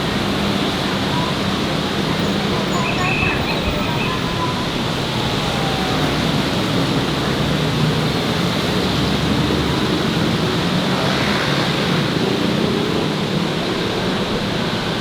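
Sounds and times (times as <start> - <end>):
busy street traffic: 0.0 - 15.0.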